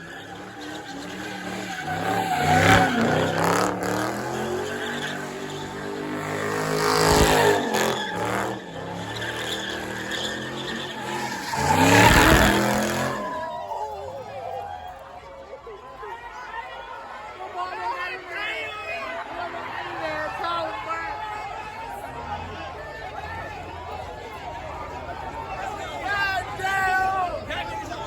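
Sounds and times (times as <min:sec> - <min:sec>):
tyre squeal: 0:00.0 - 0:13.6
car engine revving hard: 0:00.2 - 0:13.4.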